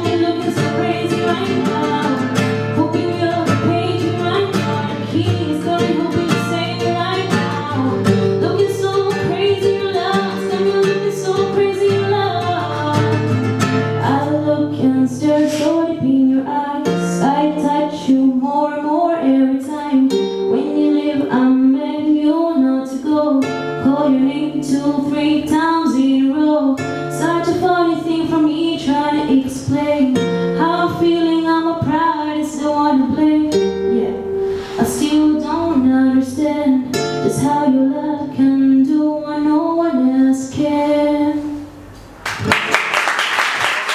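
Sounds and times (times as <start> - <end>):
woman singing: 0.0 - 41.8
acoustic guitar: 0.0 - 42.9.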